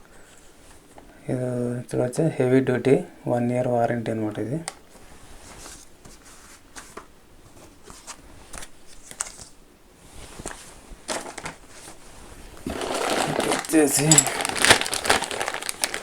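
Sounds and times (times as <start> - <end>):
paper and plastic crinkling: 4.7 - 9.6, 10.2 - 16.0.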